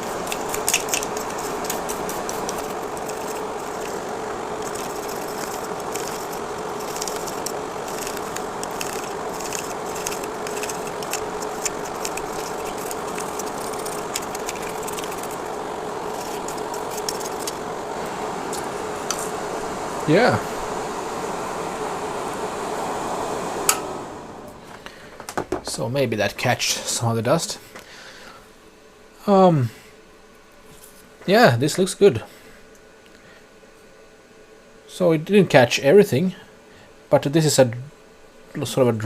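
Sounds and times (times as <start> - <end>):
toothbrush clicking on fan blades: 0.0 - 17.9
extractor fan whirring: 0.0 - 28.7.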